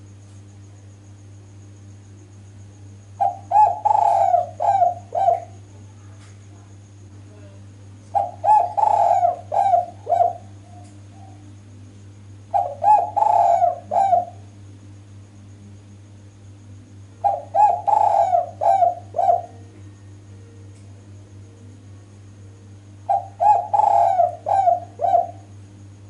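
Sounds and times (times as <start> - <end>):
dove cooing: 3.2 - 5.6, 8.1 - 11.5, 12.5 - 14.5, 17.2 - 20.5, 23.0 - 25.6.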